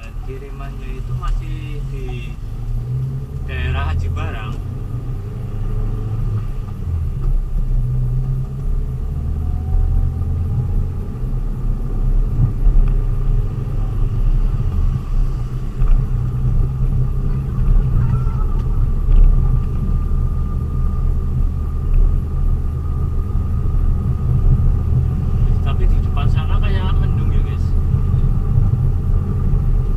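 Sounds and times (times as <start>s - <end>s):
vehicle engine and road rumble: 0.0s - 29.9s.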